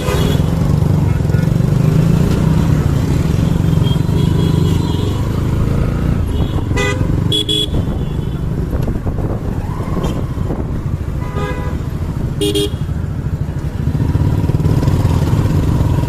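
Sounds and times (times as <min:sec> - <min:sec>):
road and wind rumble: 0:00.0 - 0:16.0
motorcycle engine running: 0:10.6 - 0:16.0.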